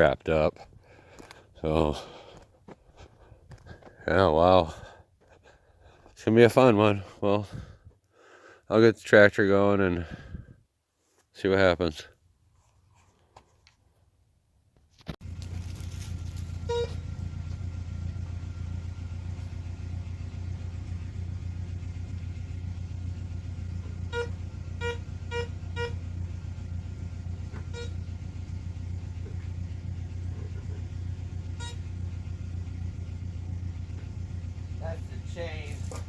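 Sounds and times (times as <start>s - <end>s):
tractor engine idling: 0.0s - 7.8s, 15.2s - 36.0s.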